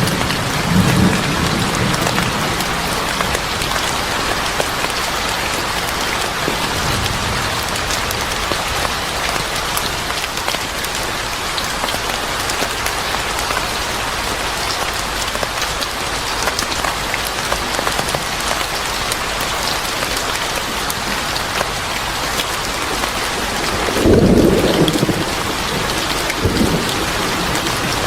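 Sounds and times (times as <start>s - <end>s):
rain falling on a surface: 0.0s - 28.0s.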